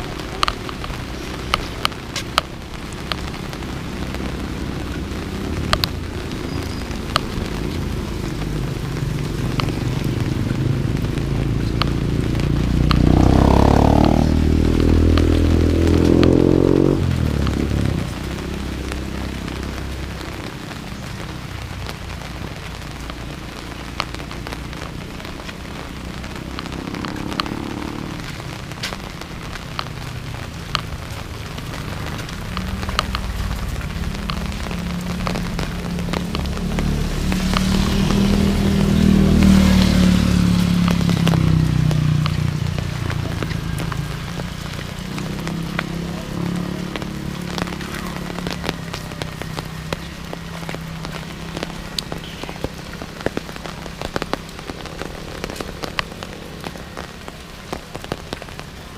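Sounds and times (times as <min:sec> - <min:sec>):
raindrops ticking sharply: 0:00.0 - 0:58.9
steady rain falling: 0:00.0 - 0:58.9.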